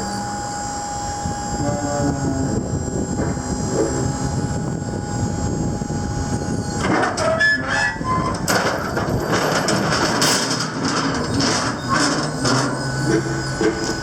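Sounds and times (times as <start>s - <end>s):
hydraulic lift gate whining: 0.0s - 14.0s.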